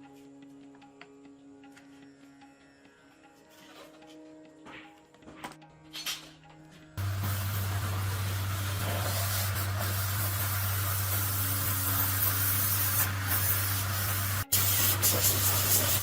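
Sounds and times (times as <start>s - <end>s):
low even hum: 7.0s - 14.5s
steady spraying hiss: 7.0s - 16.0s.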